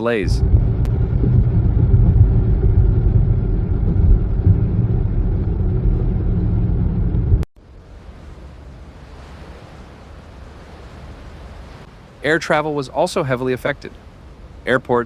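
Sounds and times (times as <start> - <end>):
vehicle rumbling: 0.0 - 8.1.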